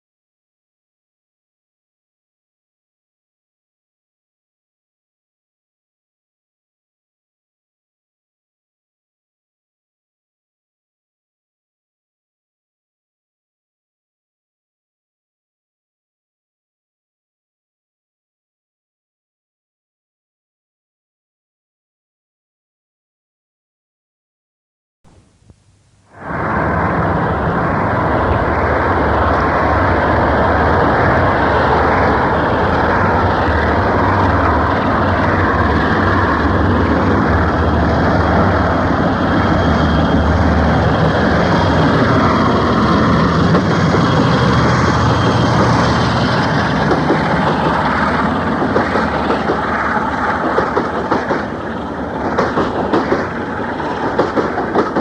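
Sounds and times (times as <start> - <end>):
diesel locomotive at full power: 25.1 - 55.0
wagons clattering over rail joints: 43.0 - 49.7, 52.2 - 55.0.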